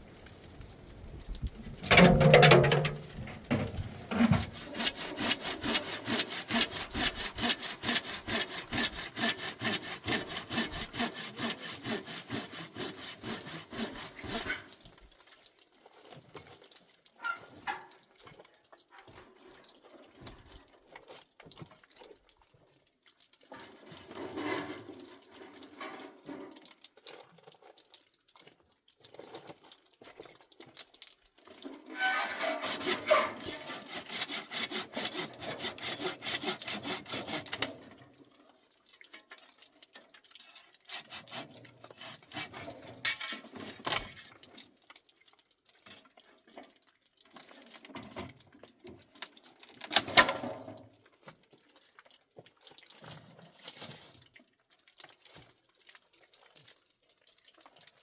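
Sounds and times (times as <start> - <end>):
scattered knocks and rustles: 0.2 - 5.9
hand saw cutting wood: 1.8 - 14.7, 32.0 - 37.8, 40.8 - 44.1.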